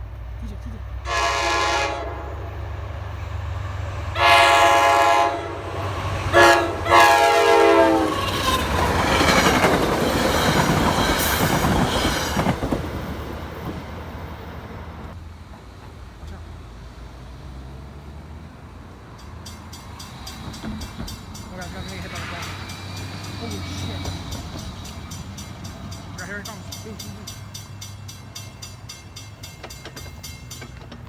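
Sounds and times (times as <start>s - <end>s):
train rumble and wheel clatter: 0.0s - 31.0s
locomotive air horn: 1.0s - 2.7s, 4.1s - 8.6s, 22.0s - 23.0s.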